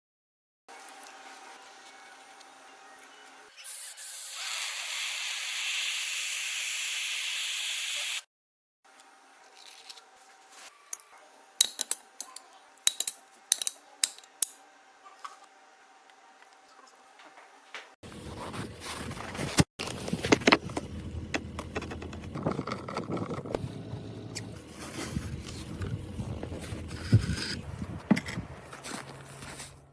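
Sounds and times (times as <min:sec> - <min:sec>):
hissing spray: 0:03.7 - 0:08.2.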